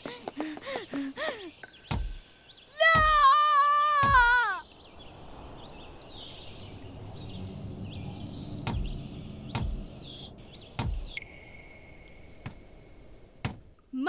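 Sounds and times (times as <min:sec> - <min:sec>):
low rumble: 0:05.6 - 0:13.4.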